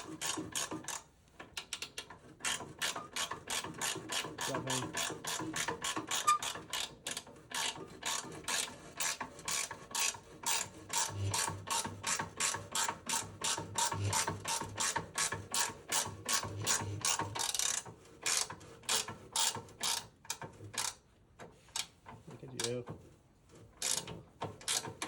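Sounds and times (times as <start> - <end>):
ratchet wrench clicking: 23.8 - 24.9.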